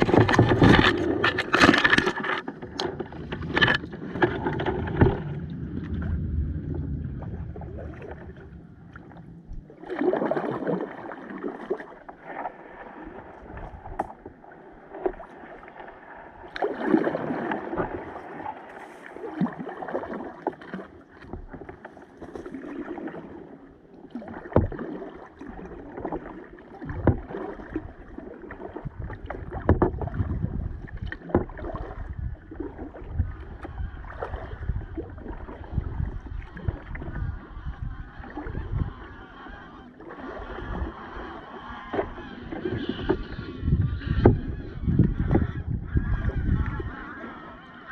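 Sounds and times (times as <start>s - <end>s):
kayak paddle splashing water: 0.0s - 47.9s.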